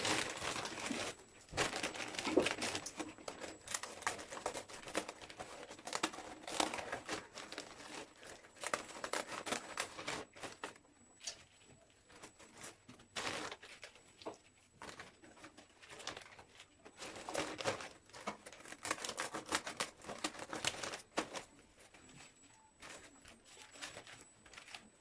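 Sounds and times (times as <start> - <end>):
crinkly material crackling: 0.0 - 25.0.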